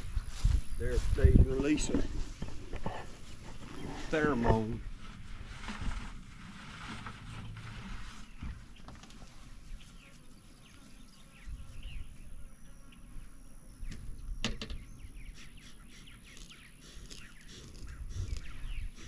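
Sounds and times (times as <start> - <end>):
small birds chirping: 8.1 - 19.0.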